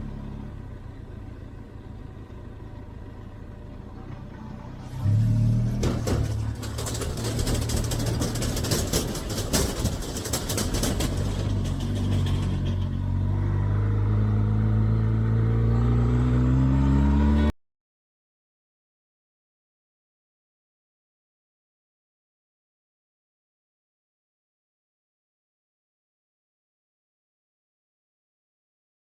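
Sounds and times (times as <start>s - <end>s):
motorcycle engine accelerating: 4.2s - 17.6s.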